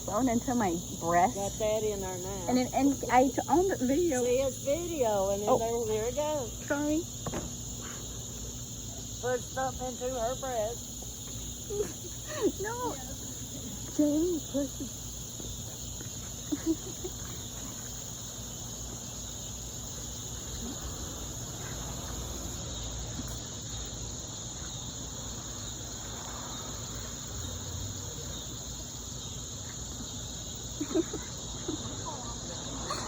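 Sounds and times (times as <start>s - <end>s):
low background hum: 0.0s - 26.2s
insects droning: 0.0s - 33.0s.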